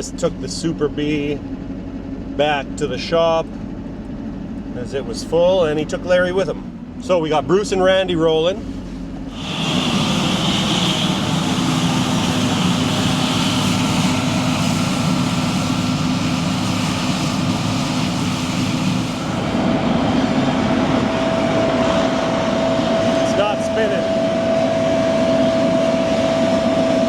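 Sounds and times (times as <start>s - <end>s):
machinery running with low hum: 0.0s - 27.0s
high steady whine: 9.2s - 27.0s.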